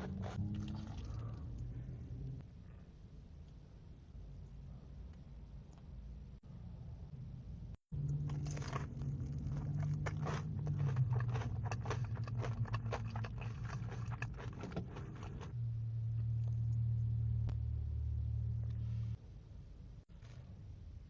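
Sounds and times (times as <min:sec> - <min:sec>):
crunching and chewing crisp food: 0:00.0 - 0:01.7, 0:08.0 - 0:15.5
steady low hum: 0:00.0 - 0:21.0.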